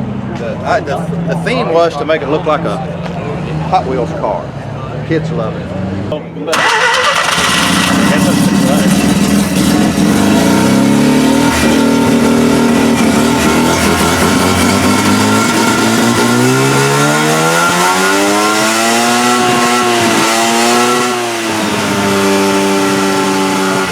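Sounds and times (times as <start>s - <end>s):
rotary engine running: 6.6s - 17.5s.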